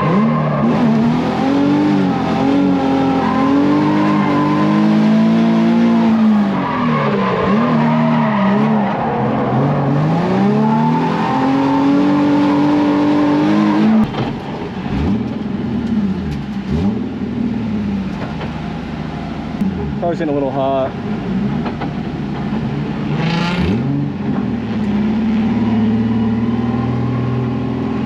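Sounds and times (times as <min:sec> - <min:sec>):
car engine revving high: 0:00.0 - 0:14.1, 0:22.9 - 0:28.0.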